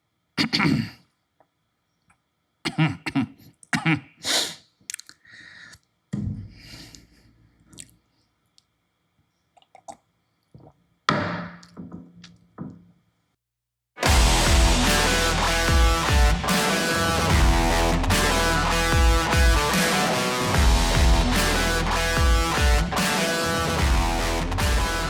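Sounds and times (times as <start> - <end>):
person coughing: 0.4 - 1.0, 2.7 - 4.3
person clearing throat: 0.4 - 1.1, 2.6 - 4.2.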